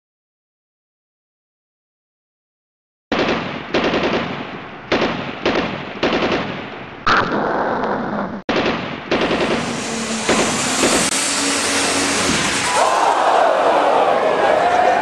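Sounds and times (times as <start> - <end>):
loud bangs: 8.5 - 14.6.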